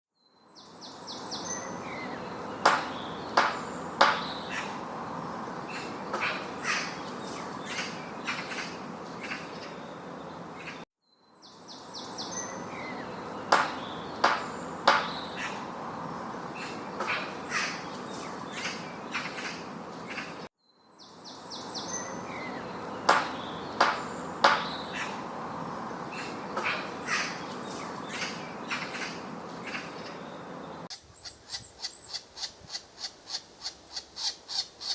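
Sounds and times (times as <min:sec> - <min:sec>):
woodpecker knocks: 0:02.6 - 0:04.6, 0:13.5 - 0:15.6, 0:23.1 - 0:25.1
outdoor hiss: 0:21.8 - 0:31.0.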